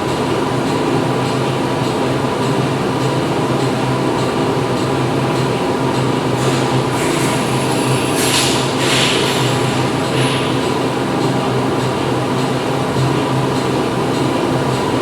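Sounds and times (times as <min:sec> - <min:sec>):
factory machinery drone: 0:00.0 - 0:15.0
short hissing bursts: 0:06.4 - 0:10.7.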